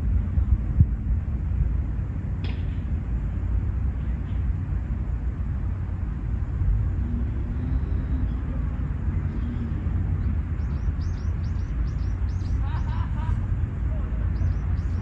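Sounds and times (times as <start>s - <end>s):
steady low rumble: 0.0s - 15.0s
bird chirping: 9.2s - 15.0s.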